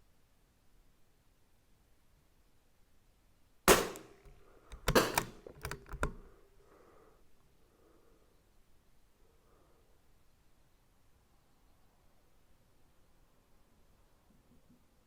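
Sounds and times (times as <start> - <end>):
rifle bolt metallic clicks: 3.7 - 6.3
rifle shot crack: 3.7 - 6.3.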